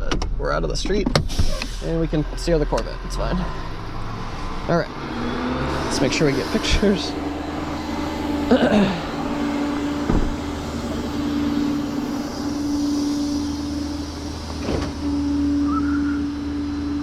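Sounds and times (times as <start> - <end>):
truck engine idling: 0.0 - 17.0
short knocks: 10.1 - 10.4.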